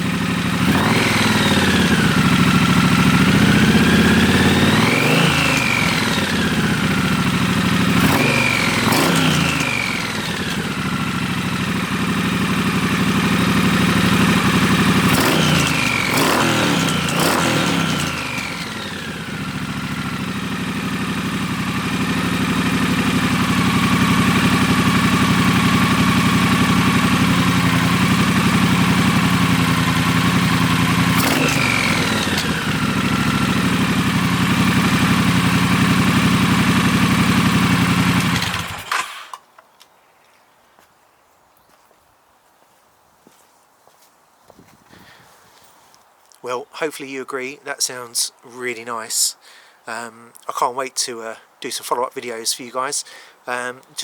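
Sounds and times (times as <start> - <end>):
motorcycle engine revving and idling: 0.0 - 39.3.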